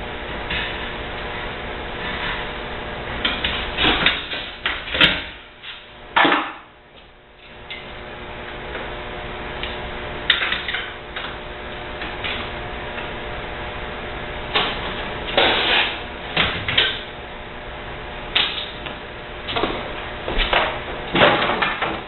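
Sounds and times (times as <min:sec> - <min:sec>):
steady hum: 0:00.0 - 0:22.0
dishwasher parts knocking and clattering: 0:19.5 - 0:22.0.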